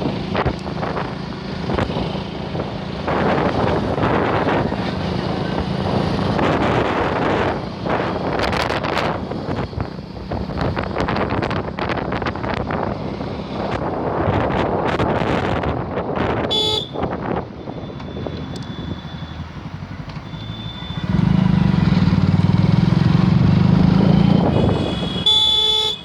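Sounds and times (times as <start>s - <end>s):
wind buffeting microphone: 0.0s - 20.0s
road traffic noise: 0.0s - 26.0s
vehicle horn beep: 16.5s - 19.4s, 20.3s - 21.2s, 24.5s - 26.0s.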